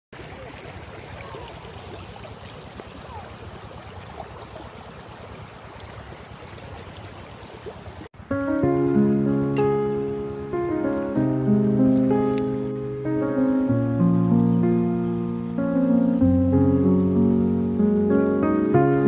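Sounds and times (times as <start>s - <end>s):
stream rushing: 0.2s - 19.0s
guitar music: 8.3s - 19.0s.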